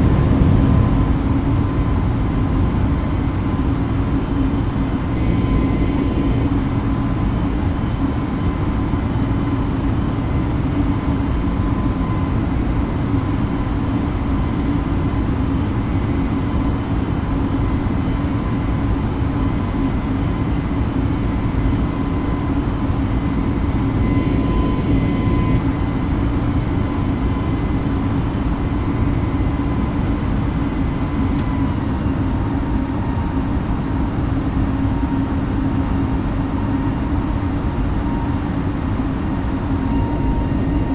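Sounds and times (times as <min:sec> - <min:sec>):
jet engine cabin drone: 0:00.0 - 0:40.9
thin whine-like tones: 0:04.9 - 0:09.4, 0:23.4 - 0:27.6, 0:36.8 - 0:40.9.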